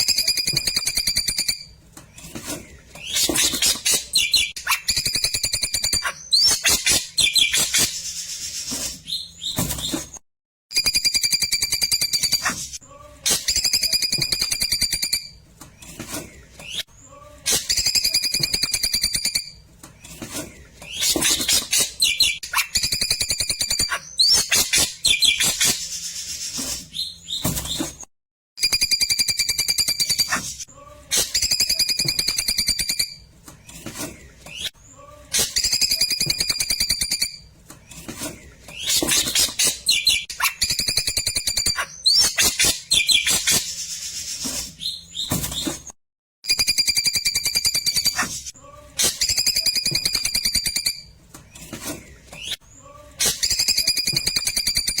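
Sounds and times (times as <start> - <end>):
bird trilling and chattering: 3.0 - 8.2, 20.9 - 26.0, 38.7 - 44.2.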